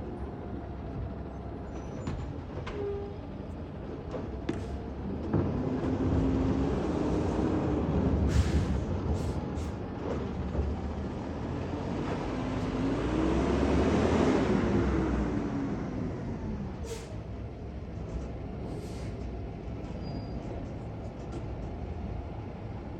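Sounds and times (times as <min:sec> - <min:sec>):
large vehicle driving past: 0:04.6 - 0:17.3.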